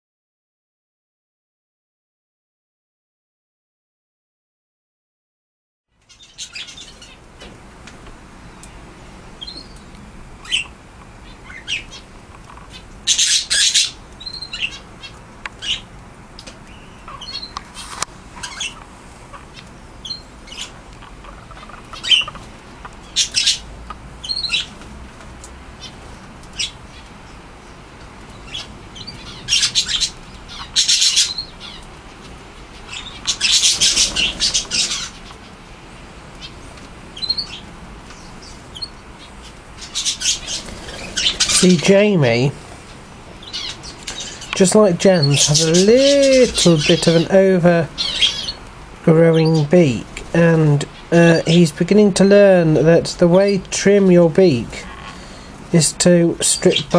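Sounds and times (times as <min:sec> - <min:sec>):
budgerigars chirping: 0:06.1 - 0:07.2, 0:09.4 - 0:15.9, 0:16.7 - 0:17.6, 0:18.4 - 0:24.7, 0:25.8 - 0:31.9, 0:32.6 - 0:35.5, 0:37.2 - 0:42.5, 0:43.4 - 0:52.2, 0:56.4 - 0:56.9
budgerigars scratchy squawking: 0:06.1 - 0:07.2, 0:10.4 - 0:15.9, 0:16.8 - 0:24.7, 0:28.4 - 0:31.9, 0:32.6 - 0:35.6, 0:38.4 - 0:42.5, 0:43.4 - 0:51.7.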